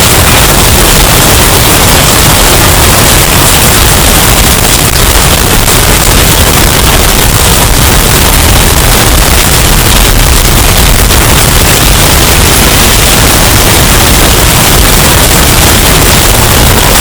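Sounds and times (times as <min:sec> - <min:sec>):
distorted storm noise rush: 0:00.0 - 0:17.0.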